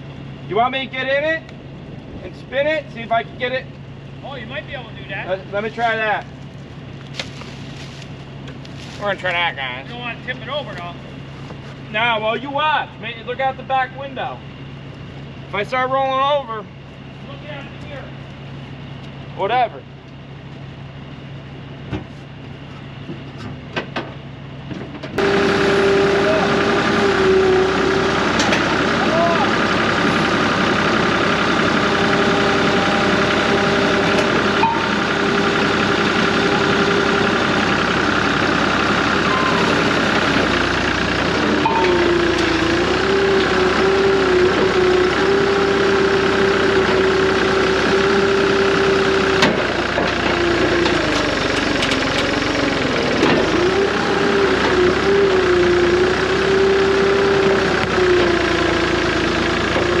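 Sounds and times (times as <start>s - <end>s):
diesel engine revving hard: 25.2s - 60.0s.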